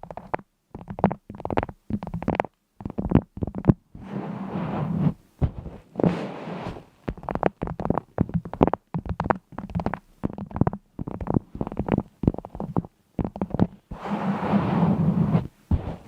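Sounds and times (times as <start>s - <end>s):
rustling or scraping: 4.0s - 7.0s, 13.5s - 16.0s
sharp taps and clicks: 7.1s - 13.8s.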